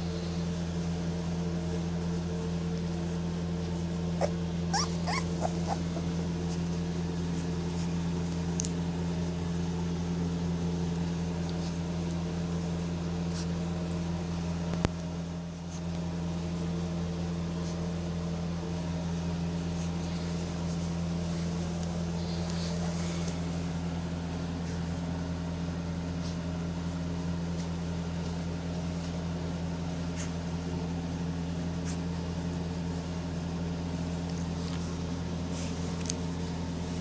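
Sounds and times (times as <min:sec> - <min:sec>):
steady machine hum: 0:00.0 - 0:37.0
puppies whimpering: 0:04.2 - 0:06.7.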